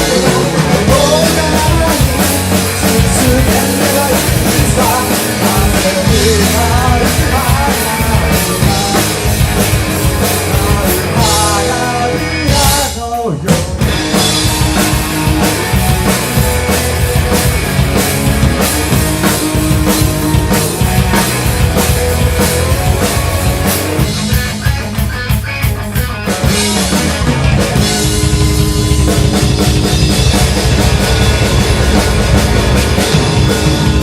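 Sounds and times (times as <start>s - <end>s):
drum kit: 0.0s - 34.0s
rock band playing live: 0.0s - 34.0s.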